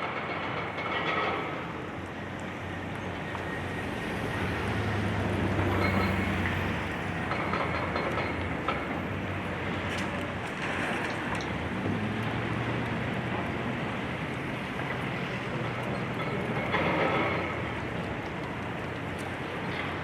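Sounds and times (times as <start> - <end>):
scattered clicks and knocks: 0.0 - 3.6, 5.6 - 13.6, 14.2 - 20.0
excavator diesel engine droning: 2.6 - 18.0.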